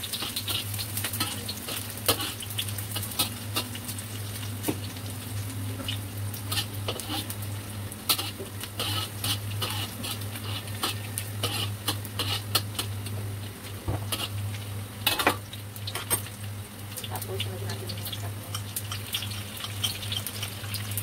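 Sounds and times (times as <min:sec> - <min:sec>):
garlic and onion frying in oil: 0:00.0 - 0:21.0
metal spatula scraping a pan: 0:00.2 - 0:03.7, 0:06.5 - 0:07.4, 0:08.1 - 0:12.9, 0:14.1 - 0:14.4.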